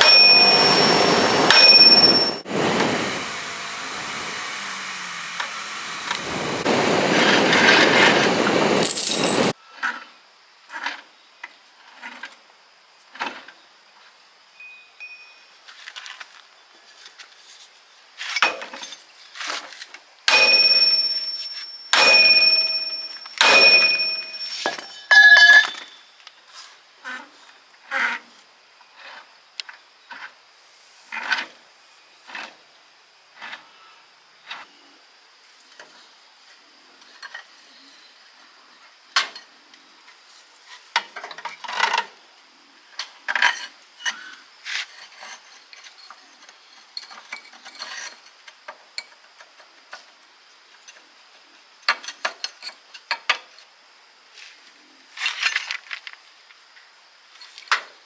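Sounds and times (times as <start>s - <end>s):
faint steady high tone: 0.0s - 9.5s, 14.6s - 15.6s, 20.3s - 26.2s
metal tools clinking and knocking: 22.7s - 26.0s.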